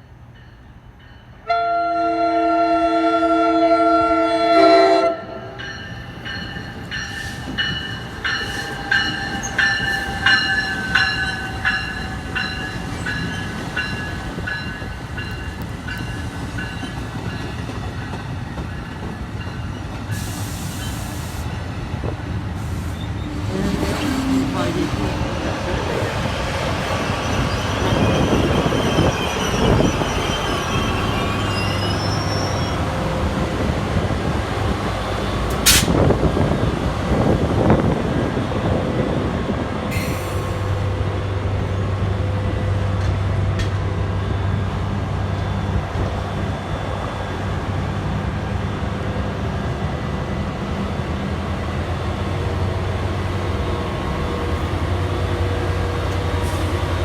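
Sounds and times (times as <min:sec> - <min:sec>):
train engine hum: 0:00.0 - 0:57.0
wheel and rail noise: 0:05.7 - 0:57.0
sharp squeak: 0:27.0 - 0:32.8.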